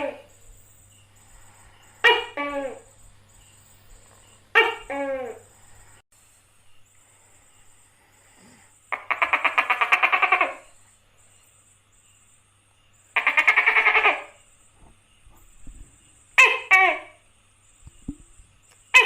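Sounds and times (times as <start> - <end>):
gecko chattering call: 8.9 - 10.9, 12.9 - 14.5.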